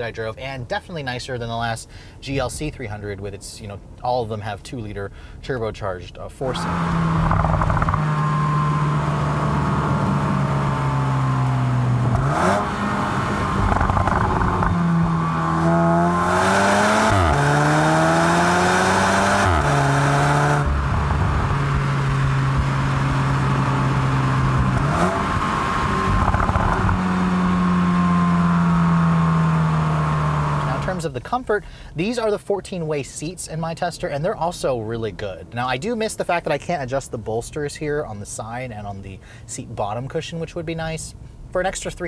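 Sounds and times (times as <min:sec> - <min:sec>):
car engine revving with gear shifts: 0:06.5 - 0:31.0.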